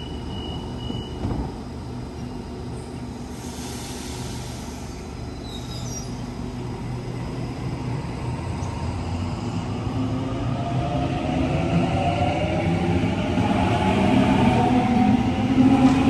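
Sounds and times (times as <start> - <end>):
train low rumble: 0.0 - 16.0.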